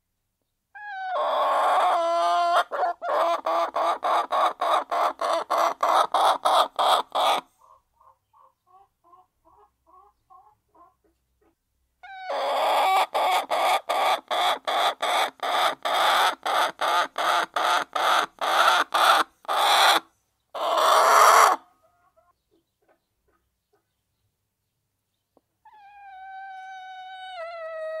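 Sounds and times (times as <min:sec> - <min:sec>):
hen cackling loudly: 0:00.8 - 0:07.8, 0:12.0 - 0:20.0, 0:20.6 - 0:21.7
hens clucking: 0:00.8 - 0:24.0.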